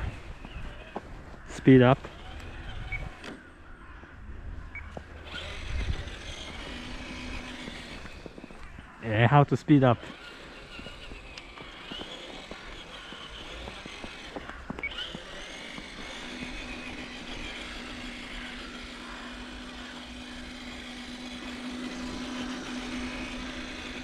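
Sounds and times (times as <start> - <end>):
toy truck motor whining: 0.0 - 3.4, 4.8 - 24.0
steady hum: 4.2 - 24.0.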